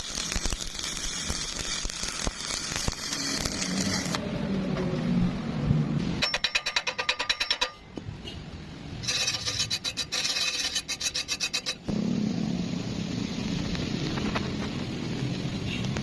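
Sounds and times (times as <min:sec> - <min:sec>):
rhythmic rasping strokes: 0:09.0 - 0:11.9.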